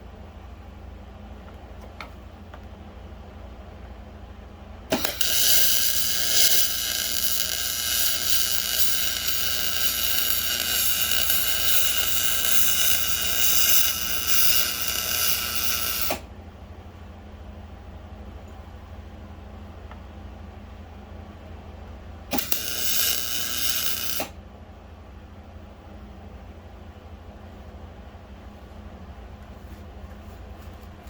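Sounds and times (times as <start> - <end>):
small motor whining with gear noise: 4.9 - 16.2, 22.3 - 24.3.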